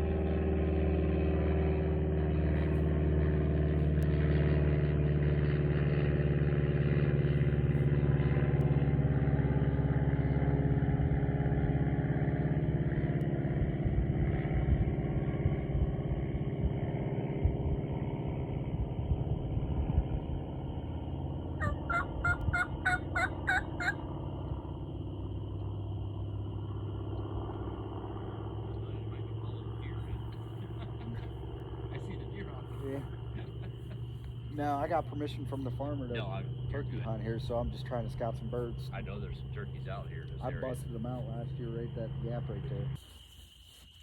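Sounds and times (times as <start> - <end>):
vehicle engine running: 0.0 - 44.0
turkey gobbling notes: 21.6 - 24.1, 32.6 - 34.6.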